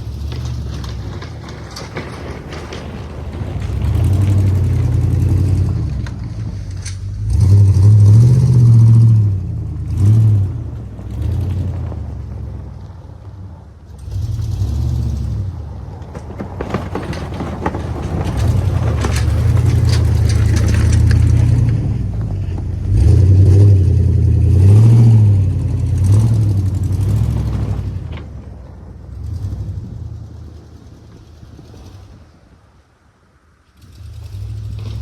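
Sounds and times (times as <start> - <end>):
clattering knocks: 0.0 - 8.1, 15.9 - 23.8
truck engine revving: 0.0 - 32.9, 33.8 - 35.0.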